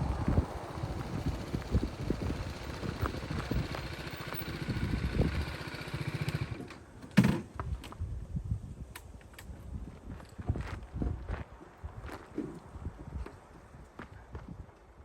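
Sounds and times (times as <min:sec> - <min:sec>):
wind noise: 0:00.0 - 0:05.8, 0:07.5 - 0:15.0
motorcycle engine running: 0:00.0 - 0:06.7.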